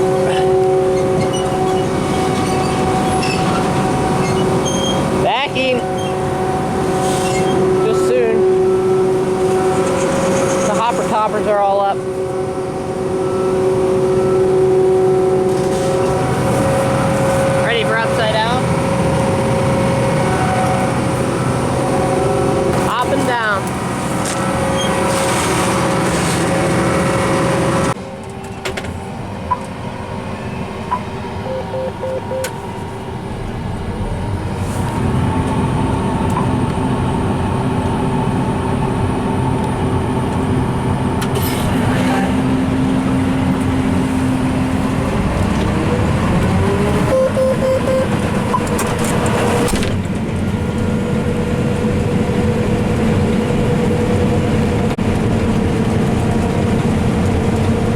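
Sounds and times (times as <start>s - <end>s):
combine harvester running: 0.0s - 57.9s
short beeping tones: 30.9s - 32.6s, 47.1s - 48.7s.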